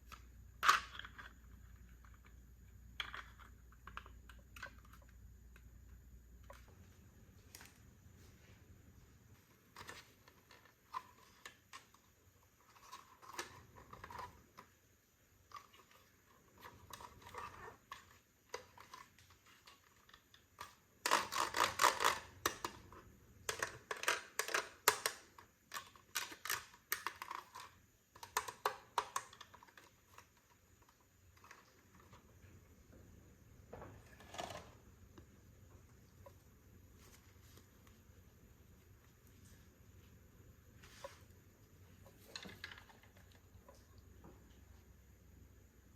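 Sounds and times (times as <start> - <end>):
plastic toy pieces clicking: 19.7 - 22.8, 23.4 - 30.3.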